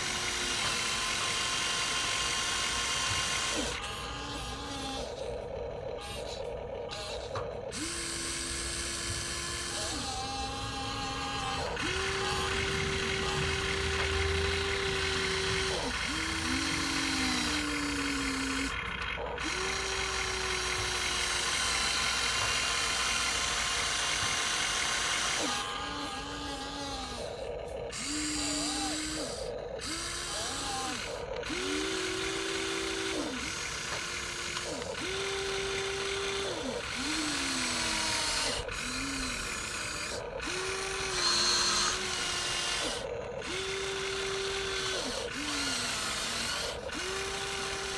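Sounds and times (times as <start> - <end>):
small electric motors whining: 0.0 - 47.9.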